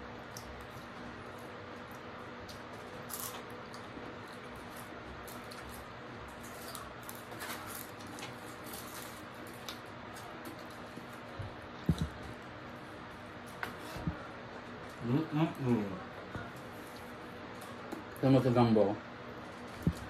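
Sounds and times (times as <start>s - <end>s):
faint steady hum: 0.0s - 20.0s
crunchy chewing: 0.2s - 12.4s.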